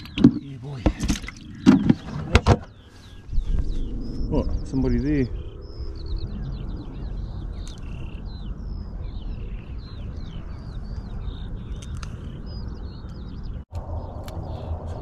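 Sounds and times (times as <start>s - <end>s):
birds singing: 0.0s - 15.0s
low steady rumble: 3.0s - 15.0s.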